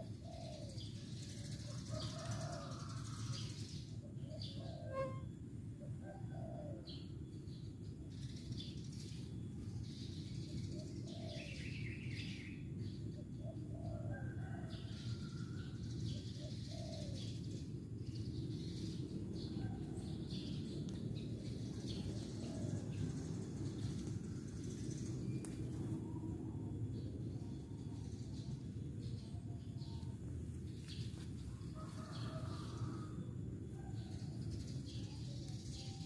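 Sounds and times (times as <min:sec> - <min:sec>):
doves cooing: 0:00.0 - 0:03.2, 0:04.3 - 0:05.2, 0:05.9 - 0:06.9, 0:11.0 - 0:11.6, 0:16.4 - 0:17.3, 0:21.8 - 0:24.8
low background rumble: 0:17.3 - 0:35.8.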